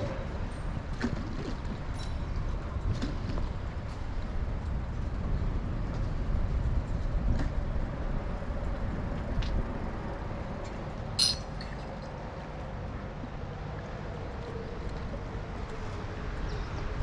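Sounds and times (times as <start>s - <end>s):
wind and road noise rumble: 0.0s - 17.0s
high metallic clink: 11.2s - 11.8s.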